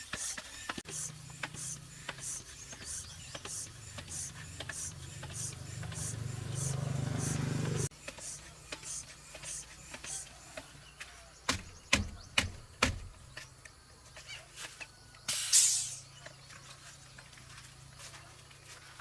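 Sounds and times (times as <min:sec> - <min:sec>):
short hissing or scraping: 0:15.3 - 0:16.1.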